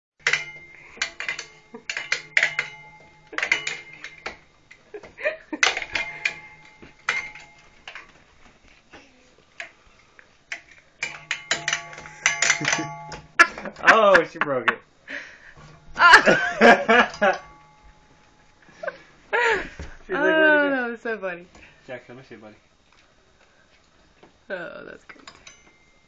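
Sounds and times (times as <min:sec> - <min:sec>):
toy knocking and clattering: 0:00.2 - 0:04.8, 0:05.6 - 0:08.2, 0:10.5 - 0:14.3, 0:15.6 - 0:18.3
low steady hum: 0:00.2 - 0:26.0.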